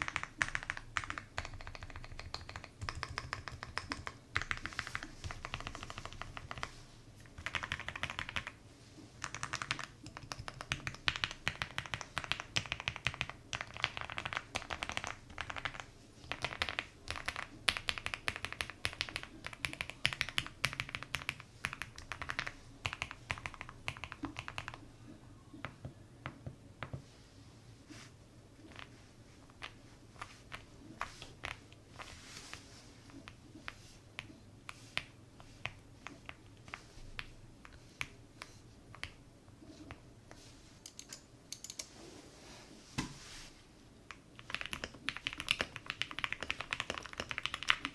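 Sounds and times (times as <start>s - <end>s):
mechanical keyboard typing: 0.0s - 8.6s, 9.2s - 24.8s, 40.8s - 41.9s, 44.4s - 47.9s.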